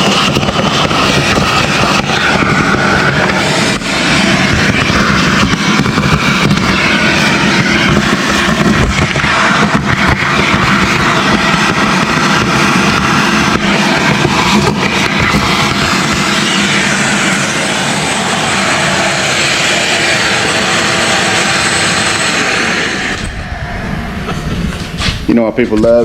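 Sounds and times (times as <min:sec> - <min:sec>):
machine motor running: 0:00.0 - 0:25.3.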